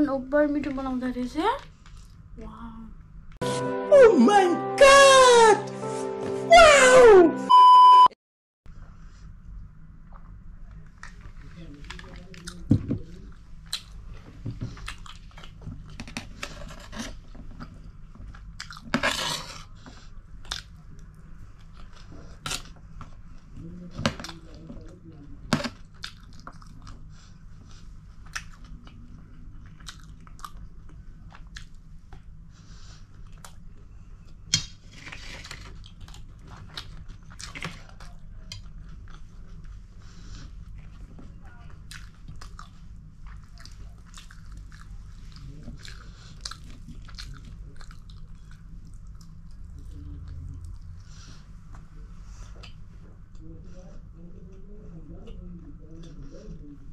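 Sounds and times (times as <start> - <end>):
person chewing and biting food: 14.8 - 23.2, 25.5 - 27.1, 28.2 - 31.8, 34.8 - 39.8, 41.8 - 51.0.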